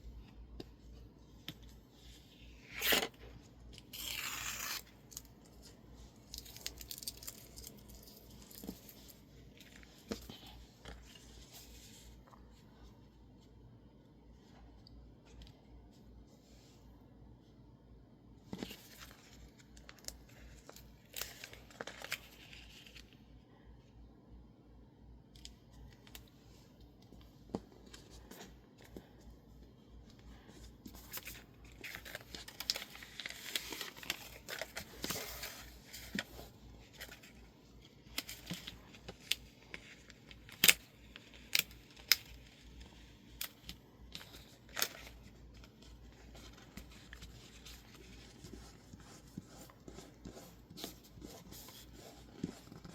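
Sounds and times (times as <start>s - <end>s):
tape peeling and tearing: 2.6s - 3.1s, 3.9s - 5.3s
paper crinkling: 30.4s - 52.9s.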